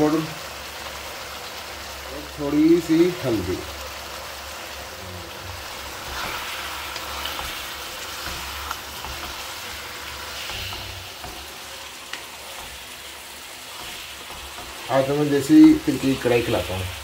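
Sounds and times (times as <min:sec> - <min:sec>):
meat sizzling in a pan: 0:00.0 - 0:17.0
stirring clicks: 0:06.0 - 0:16.2.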